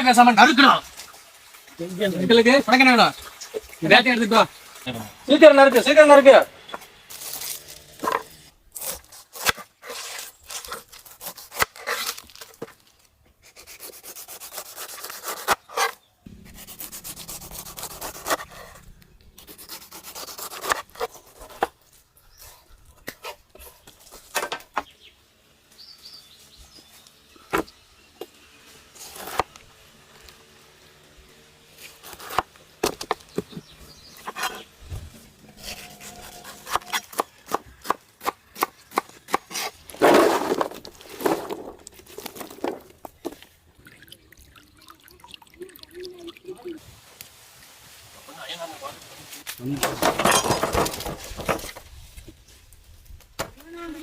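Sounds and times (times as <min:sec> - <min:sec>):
knife scraping fruit: 0:07.1 - 0:12.6, 0:13.4 - 0:21.8, 0:31.8 - 0:41.2.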